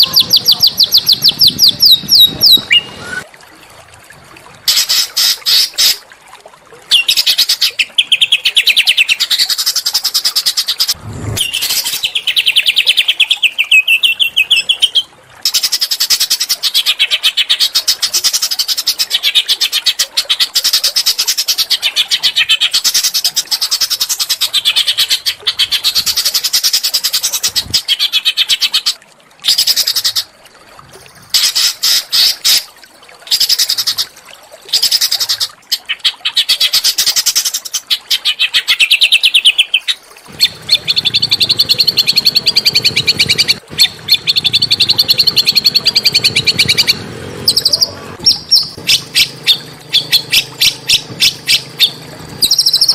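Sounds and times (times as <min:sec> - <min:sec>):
songbird trilling: 0:00.0 - 0:03.2, 0:40.4 - 0:52.9.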